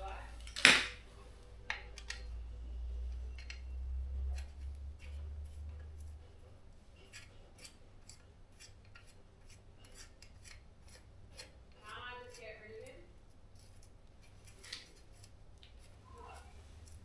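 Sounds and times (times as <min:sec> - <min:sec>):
rubbing and scraping: 0:00.0 - 0:17.0
hand tools clicking on metal: 0:01.6 - 0:02.4, 0:07.0 - 0:13.0, 0:13.6 - 0:17.0.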